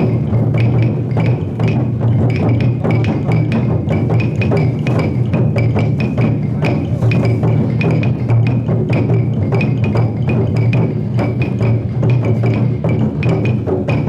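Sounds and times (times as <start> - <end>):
large drum beaten in rhythm: 0.0 - 14.0.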